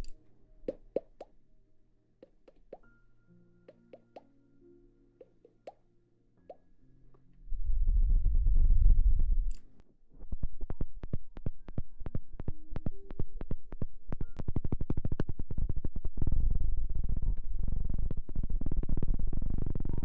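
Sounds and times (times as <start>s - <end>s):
low rumble on microphone: 7.4s - 9.6s, 14.8s - 20.0s.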